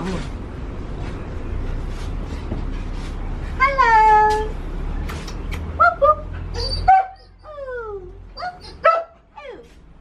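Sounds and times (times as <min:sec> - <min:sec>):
dog whining: 0:05.8 - 0:09.8
dog yipping: 0:05.8 - 0:09.8.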